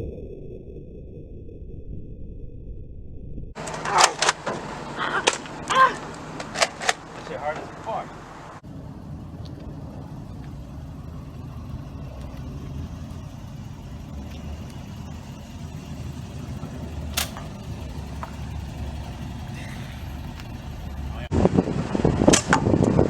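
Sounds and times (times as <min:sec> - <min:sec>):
car engine rumble: 0:03.5 - 0:23.0
road noise: 0:03.6 - 0:23.0
sharp click: 0:17.1 - 0:17.5.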